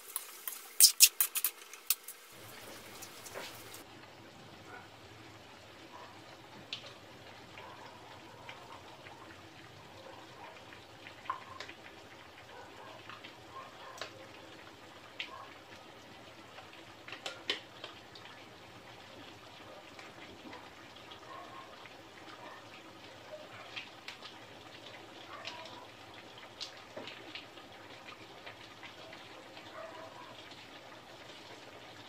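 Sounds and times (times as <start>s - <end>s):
food sizzling in a wok: 0.0s - 3.8s.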